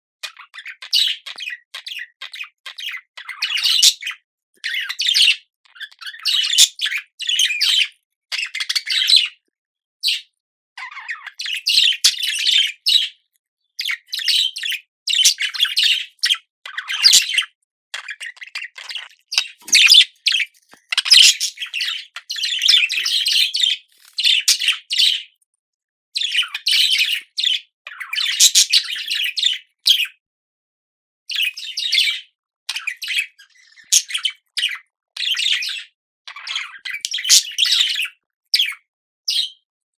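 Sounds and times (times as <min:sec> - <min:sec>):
budgerigar chattering and warbling: 0:00.2 - 0:09.4, 0:13.8 - 0:25.2, 0:26.2 - 0:30.1.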